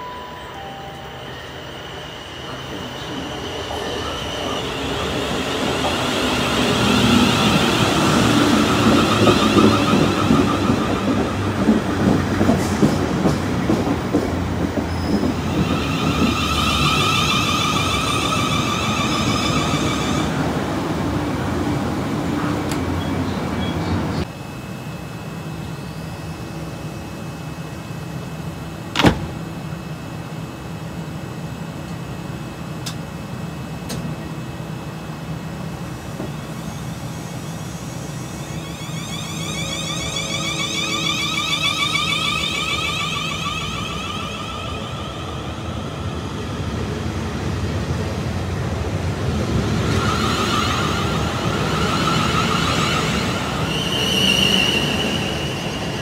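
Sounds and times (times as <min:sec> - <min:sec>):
electric traction whine: 0:00.0 - 0:13.3, 0:33.8 - 0:56.0
train wheels rumbling on rail: 0:02.5 - 0:24.3, 0:30.4 - 0:56.0.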